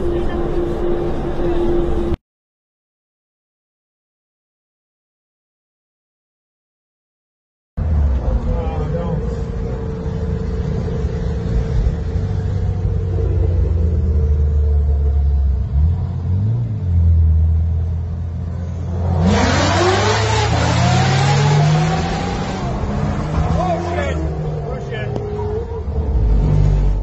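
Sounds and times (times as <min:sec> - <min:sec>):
car engine drone: 0:00.0 - 0:02.2, 0:07.8 - 0:27.0
road noise: 0:00.0 - 0:02.2, 0:07.8 - 0:27.0
vehicle accelerating: 0:07.8 - 0:27.0.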